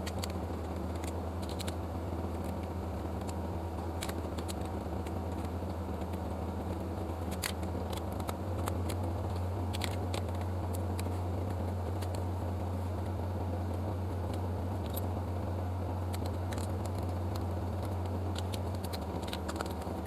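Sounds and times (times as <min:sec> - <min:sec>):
faint small clicks: 0:00.0 - 0:03.4, 0:04.0 - 0:12.2, 0:16.1 - 0:20.0
low hum: 0:00.0 - 0:20.0.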